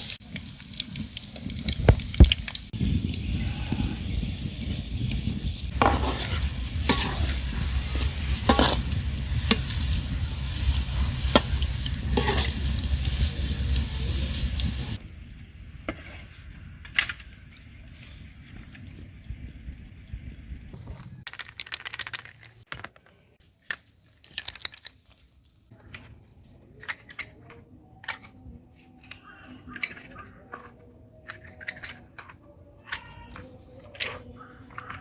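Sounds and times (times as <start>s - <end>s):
fries sizzling in hot oil: 0.0s - 20.5s
low rumble: 2.8s - 15.9s
utensil scraping a pan: 3.7s - 15.0s.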